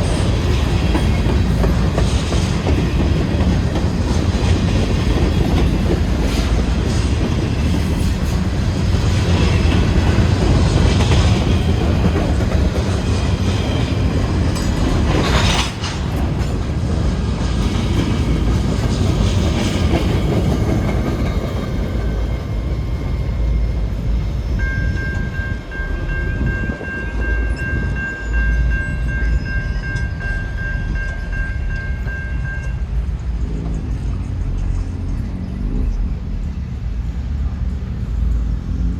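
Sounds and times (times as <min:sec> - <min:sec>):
wheels clacking over rail joints: 0:00.0 - 0:23.2
freight train rumbling past: 0:00.0 - 0:38.9.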